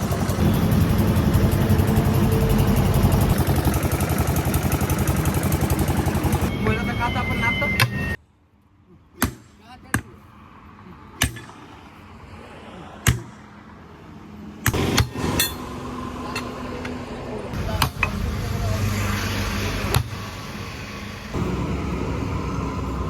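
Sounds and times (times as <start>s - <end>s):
diesel engine running: 0.0s - 8.2s, 14.8s - 23.0s
sharp metal knocks: 11.2s - 11.6s, 13.0s - 13.4s, 14.6s - 16.6s.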